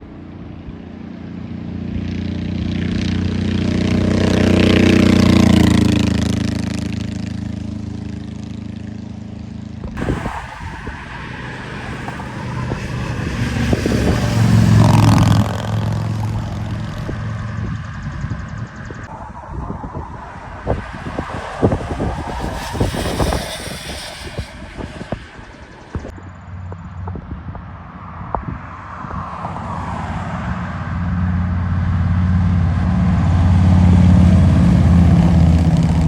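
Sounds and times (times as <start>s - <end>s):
motorcycles passing by: 0.2s - 36.0s.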